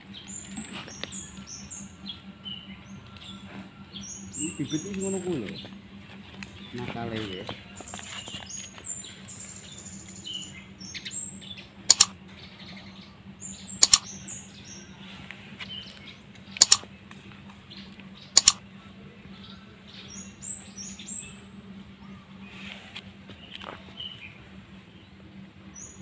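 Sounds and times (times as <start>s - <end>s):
small birds chirping: 0.0s - 26.0s
mouse click sound effects: 11.9s - 12.1s, 13.8s - 14.0s, 16.6s - 16.8s, 18.4s - 18.6s.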